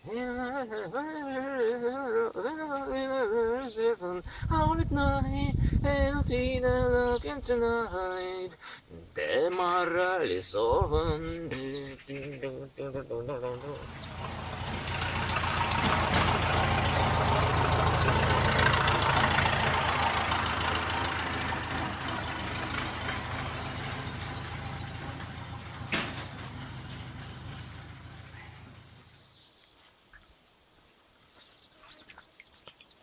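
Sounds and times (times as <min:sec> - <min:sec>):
vehicle engine humming: 0:13.3 - 0:29.4.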